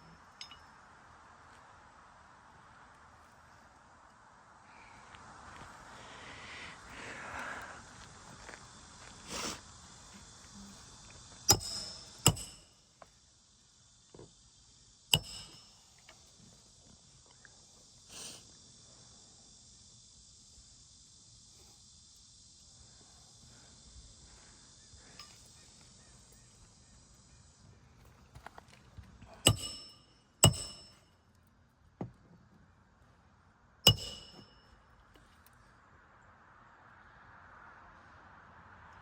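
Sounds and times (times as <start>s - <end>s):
insects droning: 0.0s - 39.0s
hammer striking nails: 11.5s - 12.7s, 15.1s - 15.7s, 29.4s - 31.0s, 33.9s - 34.6s.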